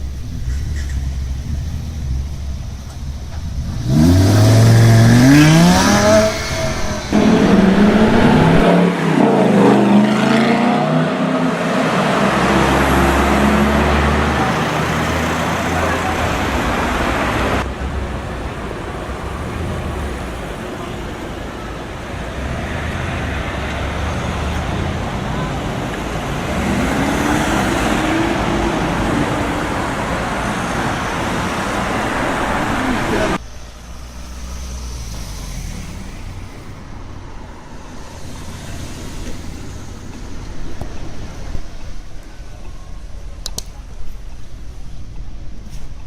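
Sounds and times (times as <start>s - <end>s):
car engine idling: 0.0s - 10.0s, 12.0s - 45.6s
loud car exhaust note: 0.0s - 18.6s.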